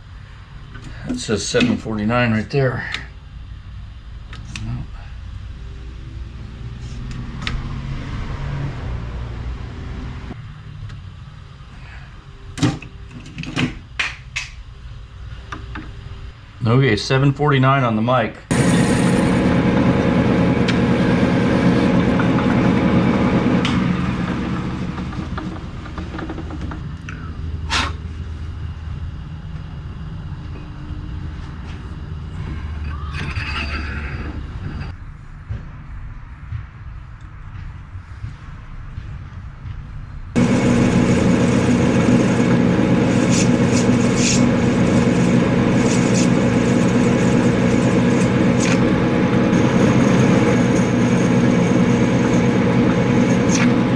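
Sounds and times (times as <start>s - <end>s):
metal lathe humming: 18.5s - 27.6s, 40.4s - 53.9s
sharp clicks and knocks: 24.9s - 27.2s
cutting tool scraping metal: 41.4s - 53.8s.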